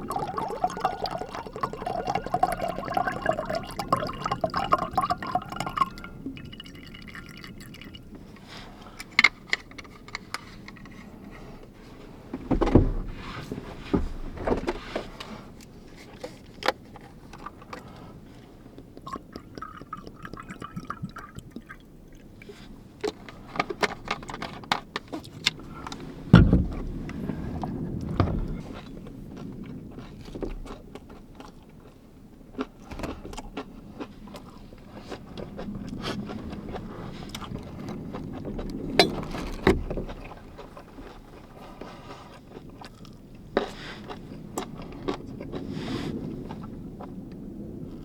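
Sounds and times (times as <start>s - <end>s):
liquid pouring into container: 0.0s - 8.1s, 19.0s - 22.6s
heavy thud: 12.4s - 13.3s, 26.3s - 27.1s.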